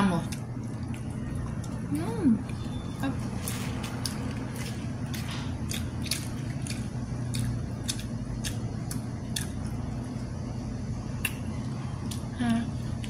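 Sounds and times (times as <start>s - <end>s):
steady low hum: 0.0s - 13.0s
person chewing sticky rice: 0.2s - 10.4s.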